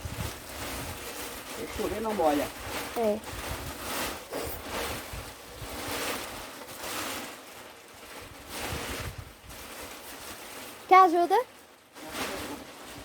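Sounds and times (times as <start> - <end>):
wind buffeting microphone: 0.0 - 6.0, 8.2 - 9.7
plastic tarp rustling: 0.0 - 13.0.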